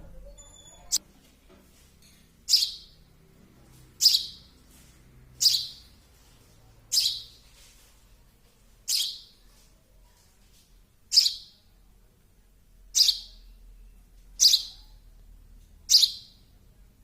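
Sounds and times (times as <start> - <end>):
baby sparrow chirping: 2.4 - 3.1, 3.9 - 4.6, 5.4 - 6.0, 6.9 - 7.5, 8.8 - 9.4, 11.0 - 11.7, 12.9 - 15.2, 15.8 - 16.5.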